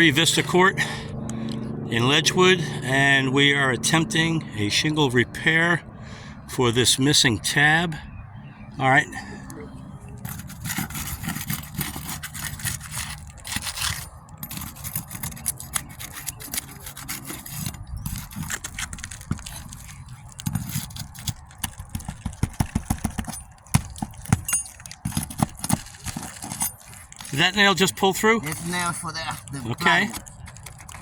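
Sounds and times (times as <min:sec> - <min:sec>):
hand tools scraping shingles: 0:10.2 - 0:31.0
sharp knocks and clicks: 0:20.4 - 0:26.7.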